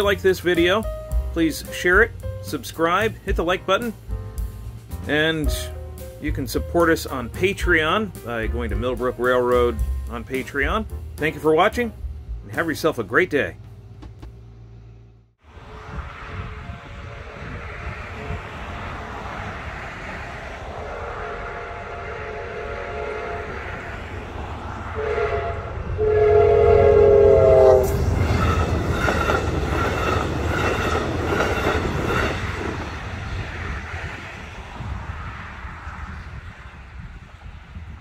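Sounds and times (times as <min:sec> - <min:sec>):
train rumble: 0:00.0 - 0:38.0
train horn blasts: 0:15.6 - 0:18.8, 0:20.8 - 0:24.0, 0:24.9 - 0:32.4
wheels clattering on rails: 0:28.0 - 0:33.7.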